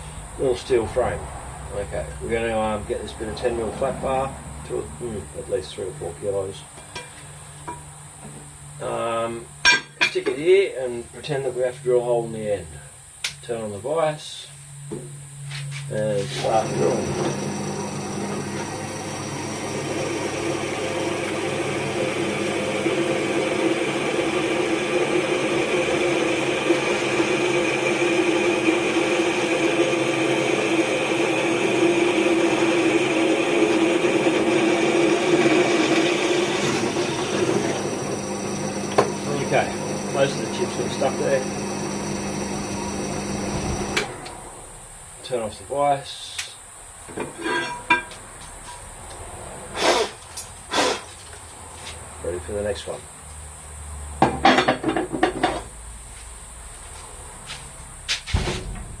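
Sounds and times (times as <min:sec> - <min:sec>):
electric drill boring into steel: 0:16.4 - 0:44.4.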